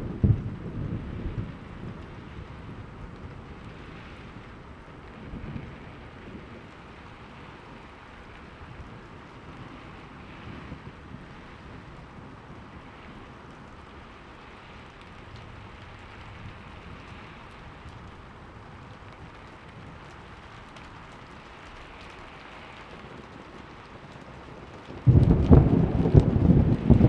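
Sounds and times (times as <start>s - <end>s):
loud thunderclap: 0.0s - 2.7s, 25.0s - 27.0s
steady rain: 0.0s - 27.0s.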